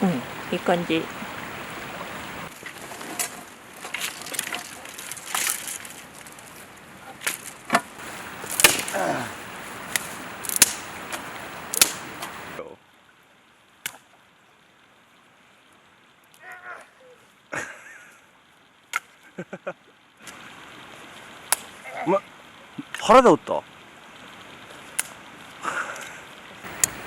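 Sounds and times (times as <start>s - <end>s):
dry sticks cracking: 2.6s - 12.5s, 26.7s - 27.0s.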